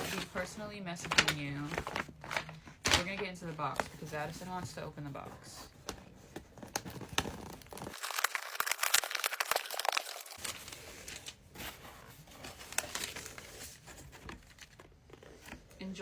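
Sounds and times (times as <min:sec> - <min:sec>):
packaging crinkling and tearing: 0:06.5 - 0:15.3.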